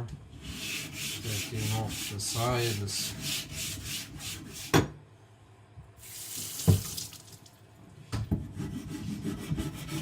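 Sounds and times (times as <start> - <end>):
water splashing: 6.1 - 7.6.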